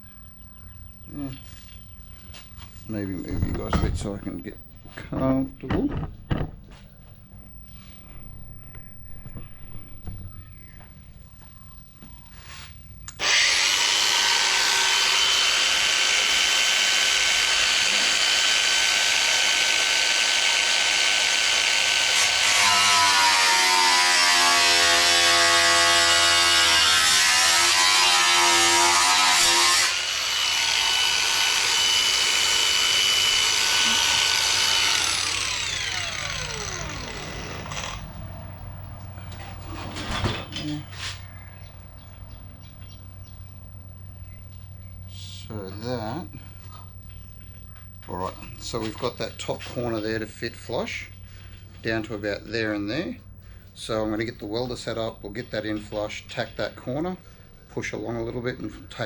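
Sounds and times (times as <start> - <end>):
cut-off tool whining: 13.1 - 38.2
abrasive wheel cutting sheet steel: 13.2 - 38.1.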